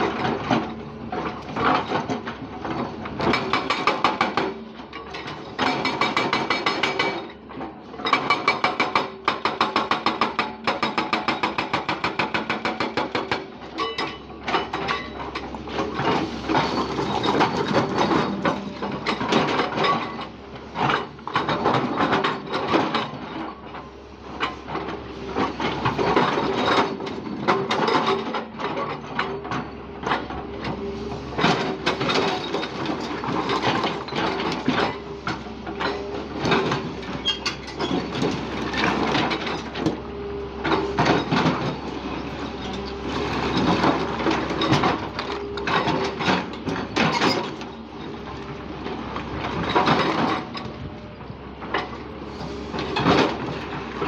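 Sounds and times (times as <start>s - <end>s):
backhoe engine running: 0.0s - 54.0s
bucket clanking and scraping: 13.8s - 22.9s.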